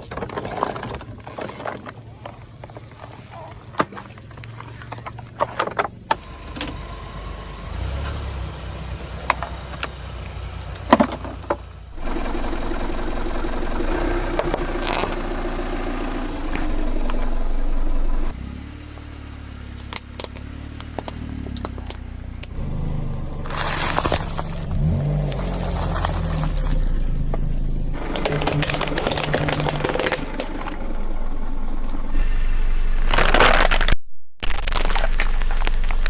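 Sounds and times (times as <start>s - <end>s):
car engine running: 5.9s - 36.0s
sharp clicks and scrapes: 33.0s - 36.0s.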